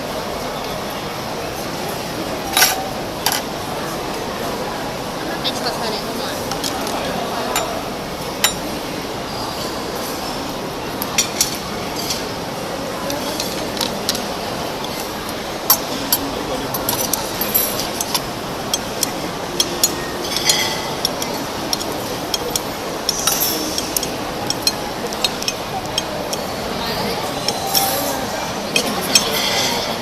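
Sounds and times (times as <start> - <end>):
indistinct voices: 0.0 - 30.0
utensils clinking on dishes: 2.4 - 3.5, 6.5 - 30.0.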